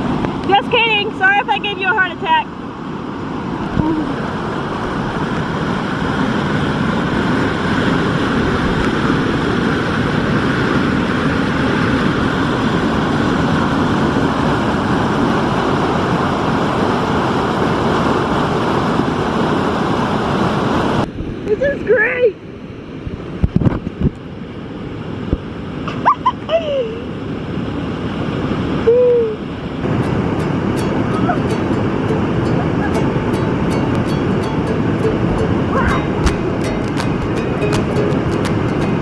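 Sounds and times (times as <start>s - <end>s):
water rushing: 29.8s - 39.0s.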